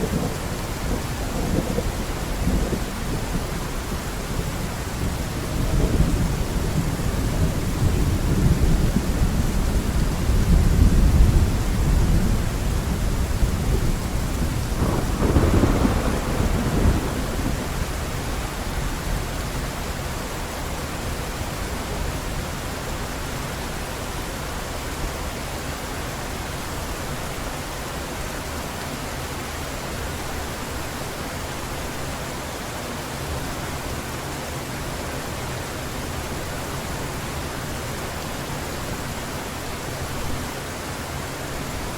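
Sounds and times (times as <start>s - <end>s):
thunder rumbling: 0.0s - 18.9s
heavy rain falling: 0.0s - 41.9s.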